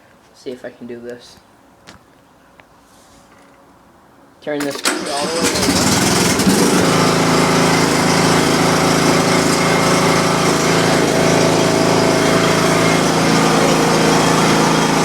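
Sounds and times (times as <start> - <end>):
lawn tractor engine running: 4.7 - 15.0.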